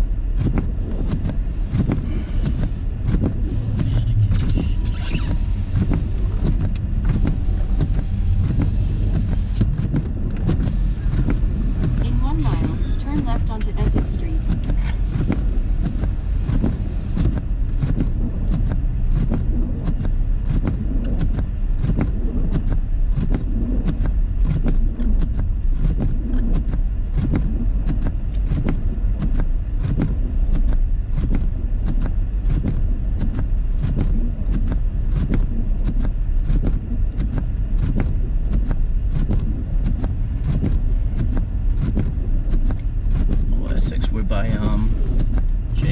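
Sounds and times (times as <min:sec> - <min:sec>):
car road and engine rumble: 0:00.0 - 0:45.9.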